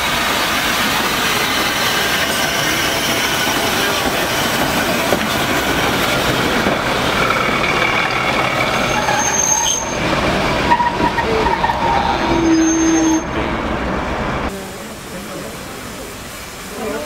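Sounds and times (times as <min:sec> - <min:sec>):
train wheels rumbling on rails: 0:00.0 - 0:17.0
high-pitched wheel squeals: 0:08.6 - 0:10.1, 0:10.7 - 0:13.4.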